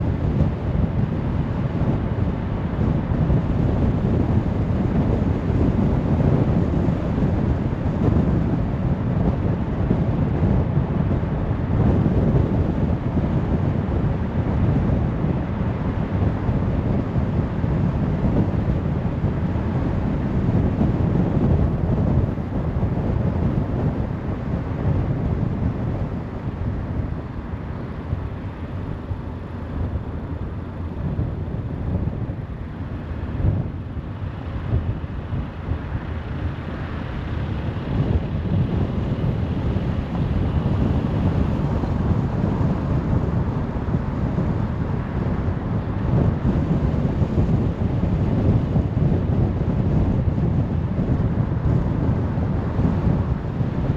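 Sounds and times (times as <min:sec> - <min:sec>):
car road noise: 0:00.0 - 0:50.4.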